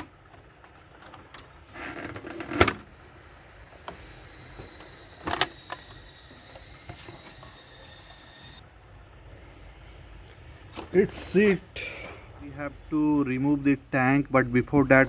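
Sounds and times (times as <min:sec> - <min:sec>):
plastic panel scraping rustle: 0:00.0 - 0:03.1, 0:03.8 - 0:07.6.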